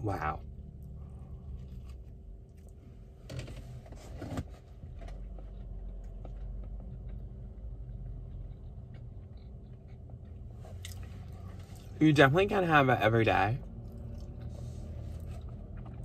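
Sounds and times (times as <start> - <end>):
low hum inside car: 0.0 - 16.0
person chewing: 5.1 - 11.9, 13.8 - 16.0.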